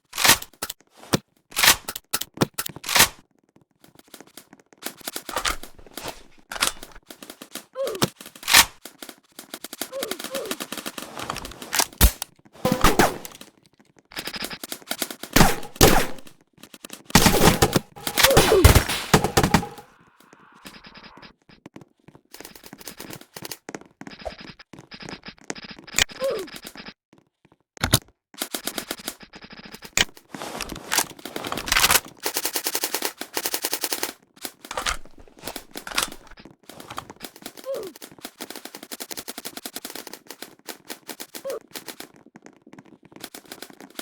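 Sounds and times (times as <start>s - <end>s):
airsoft guns firing: 12.0s - 13.4s, 15.4s - 16.3s, 17.2s - 19.9s.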